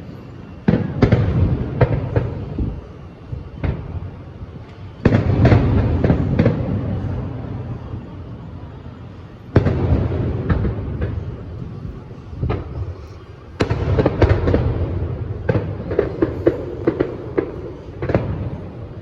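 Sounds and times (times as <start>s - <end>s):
firework bangs with rumble: 9.6s - 13.0s, 13.6s - 19.0s
crackling firework pops: 9.6s - 19.0s.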